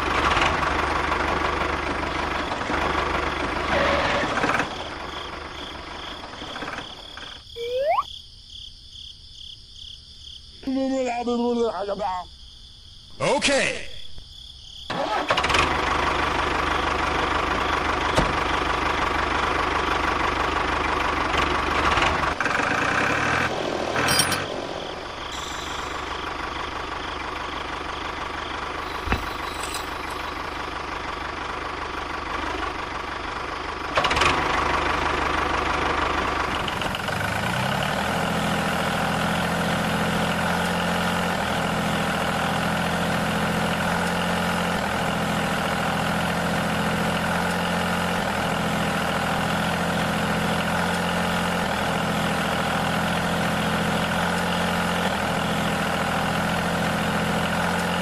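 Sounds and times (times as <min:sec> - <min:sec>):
tractor engine running: 0:00.0 - 0:08.0, 0:14.9 - 0:58.0.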